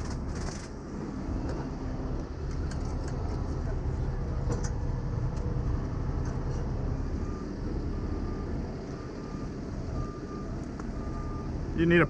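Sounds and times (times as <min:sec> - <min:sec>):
road traffic rumble: 0:00.0 - 0:12.0
reversing alarm beeping: 0:05.8 - 0:12.0.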